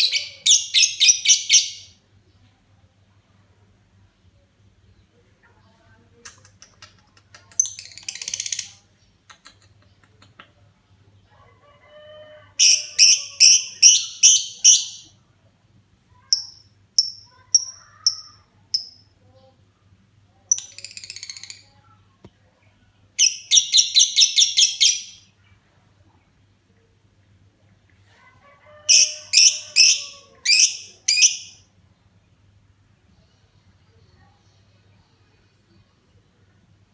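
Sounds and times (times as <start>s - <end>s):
lovebird chirping: 0.0s - 2.0s, 12.6s - 15.1s, 16.3s - 19.1s, 23.2s - 25.2s, 28.9s - 31.6s.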